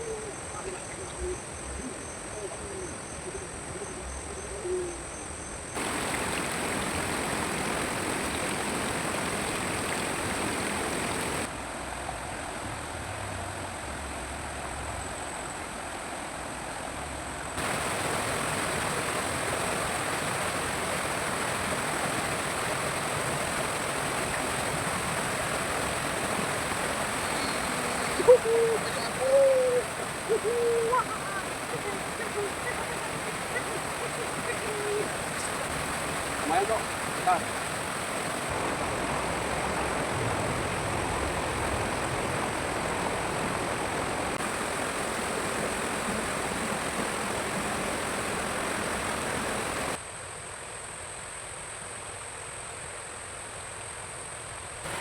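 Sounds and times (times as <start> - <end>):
stream water rushing: 5.8 - 12.6, 17.3 - 50.0.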